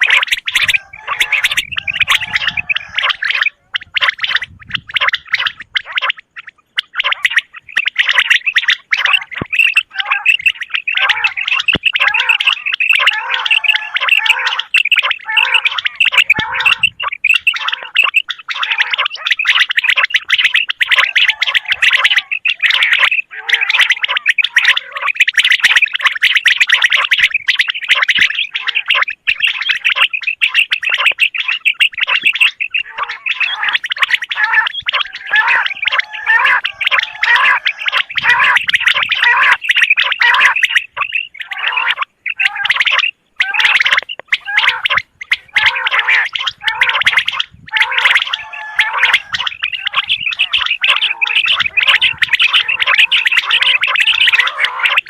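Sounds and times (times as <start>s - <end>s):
quail trilling call: 0.0s - 55.0s.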